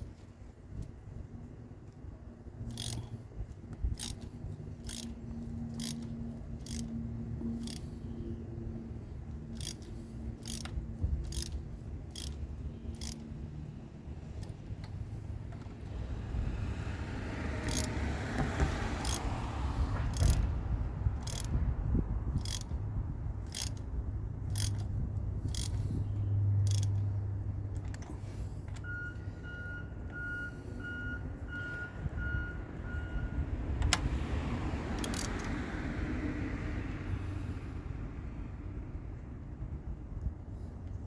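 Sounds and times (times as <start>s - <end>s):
low steady rumble: 18.9s - 34.1s.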